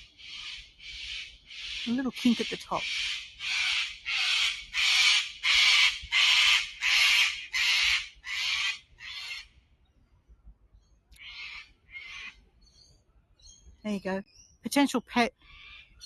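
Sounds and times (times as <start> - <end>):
cockatoo screeching: 0.3 - 9.5, 11.2 - 12.4.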